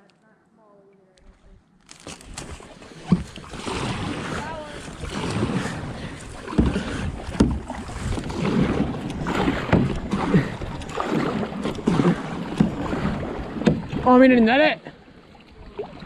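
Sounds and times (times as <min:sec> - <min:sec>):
water splashing around kayak: 0:01.2 - 0:16.0
wind on microphone: 0:02.3 - 0:14.1.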